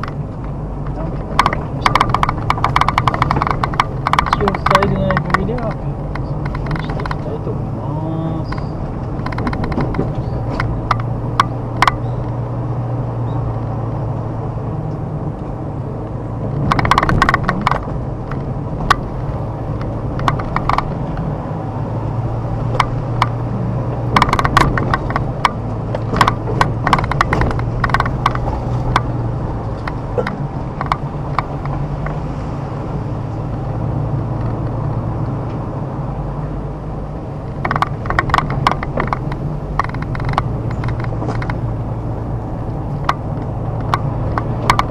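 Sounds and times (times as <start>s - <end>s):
car engine running: 0.0s - 44.9s.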